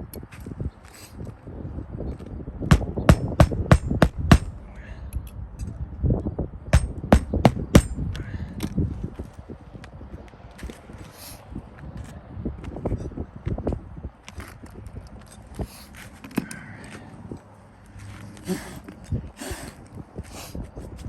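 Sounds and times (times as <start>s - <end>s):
hammer striking roofing nails: 2.7s - 4.6s, 6.8s - 8.1s.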